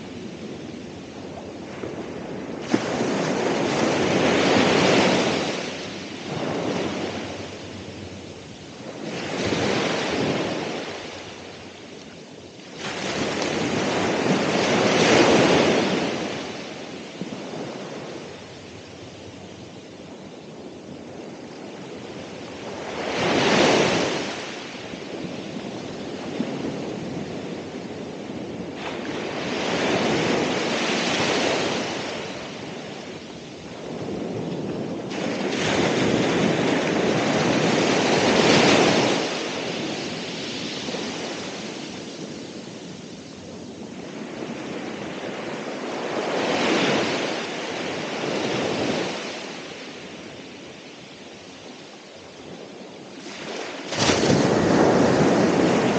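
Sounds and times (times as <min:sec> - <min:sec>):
wind on microphone: 0:00.0 - 0:55.9
ocean waves breaking: 0:01.3 - 0:19.0, 0:53.0 - 0:55.9.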